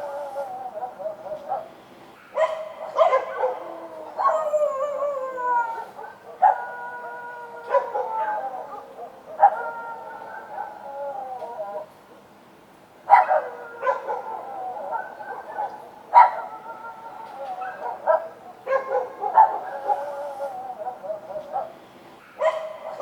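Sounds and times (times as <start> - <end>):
dogs barking and howling: 0.0 - 12.3, 13.0 - 23.0.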